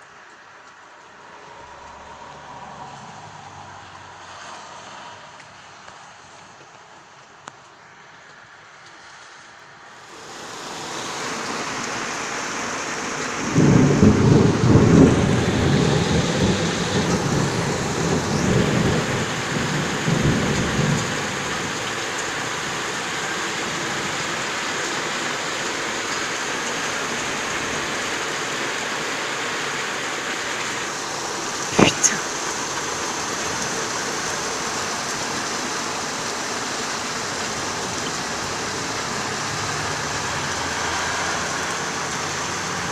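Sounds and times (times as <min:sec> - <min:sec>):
heavy rain hissing: 0:09.9 - 0:42.9
rolling thunder: 0:13.2 - 0:21.8.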